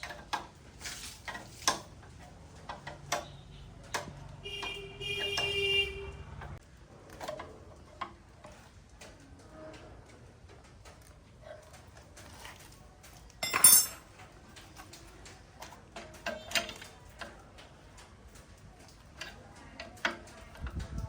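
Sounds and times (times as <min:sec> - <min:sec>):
metal tools clinking: 0:13.4 - 0:14.2
metallic clatter: 0:13.4 - 0:14.8.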